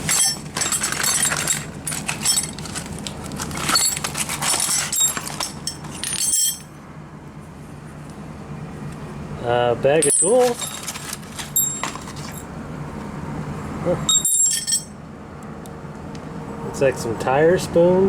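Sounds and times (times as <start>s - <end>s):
metal hand tools clinking: 0.0s - 6.7s, 10.0s - 12.5s, 14.1s - 15.0s.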